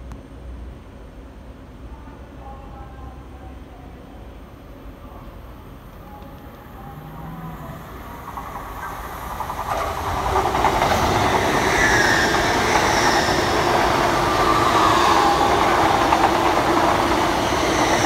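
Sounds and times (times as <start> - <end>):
train wheel and rail noise: 0.0 - 18.0
high-pitched whines: 10.9 - 18.0.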